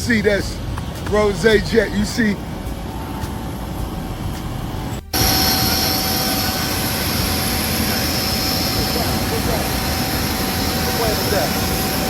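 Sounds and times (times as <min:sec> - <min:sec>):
jet engine whining: 0:00.0 - 0:12.0
low rumble: 0:02.4 - 0:12.0.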